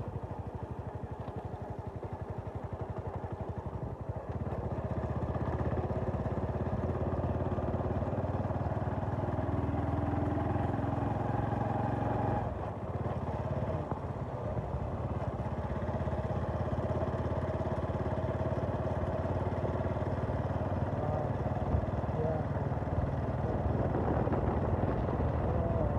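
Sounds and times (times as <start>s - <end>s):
motorcycle engine running: 0.0s - 25.9s.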